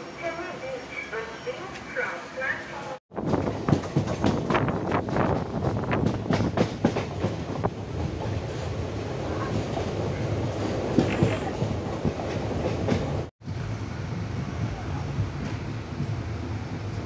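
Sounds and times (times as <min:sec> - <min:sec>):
train rumbling on rails: 0:00.0 - 0:17.0
wheels clacking over rail joints: 0:03.2 - 0:13.3.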